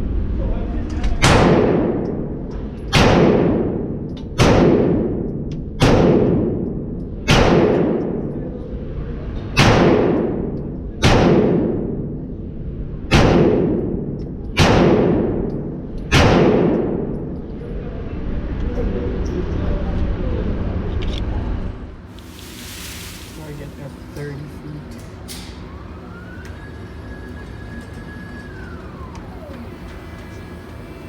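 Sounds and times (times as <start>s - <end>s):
pistol shots reverberating indoors: 1.2s - 8.4s, 9.6s - 12.3s, 13.1s - 17.5s.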